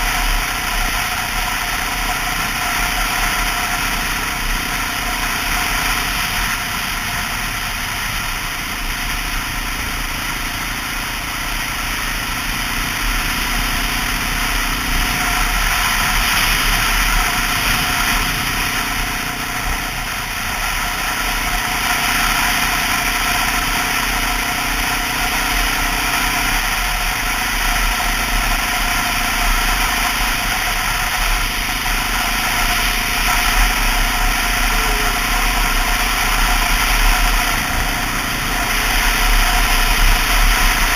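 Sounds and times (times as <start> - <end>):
motorcycle engine running: 0.0 - 40.9
riding noise rush: 26.5 - 40.9.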